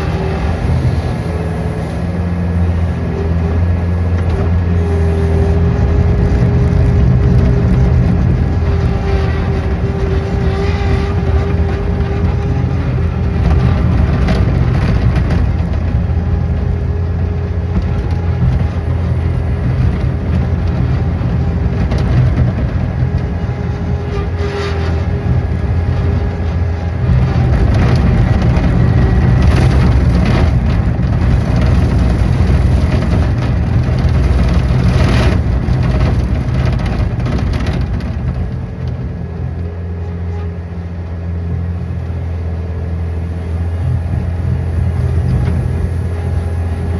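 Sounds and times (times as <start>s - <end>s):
engine running under load: 0.0s - 46.9s
sharp knocks and crunches: 3.6s - 39.9s.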